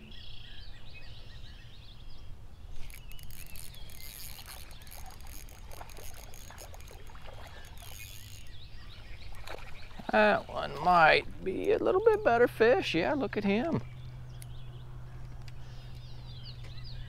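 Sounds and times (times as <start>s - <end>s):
birds chirping and calling: 0.0s - 11.8s
sharp clicks and rustles: 2.8s - 8.5s.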